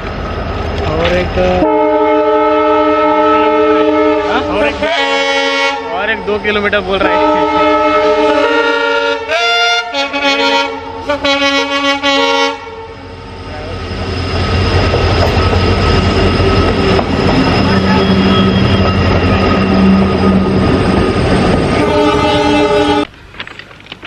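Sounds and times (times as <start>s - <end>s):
train rumbling along track: 0.0s - 24.0s
train horn blasts: 1.6s - 6.3s, 7.0s - 13.1s, 21.7s - 23.1s.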